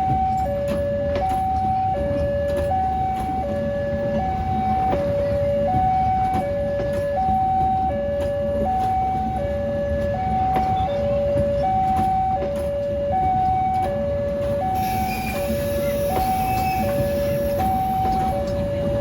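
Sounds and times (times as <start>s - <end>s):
level crossing two-tone alarm: 0.0s - 19.0s
hiss: 14.8s - 17.8s.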